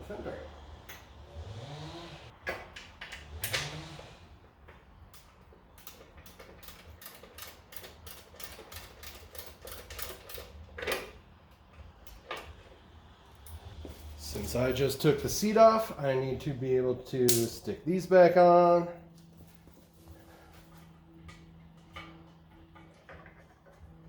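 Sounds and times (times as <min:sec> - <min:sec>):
ratchet wrench clicking: 0:05.1 - 0:11.0.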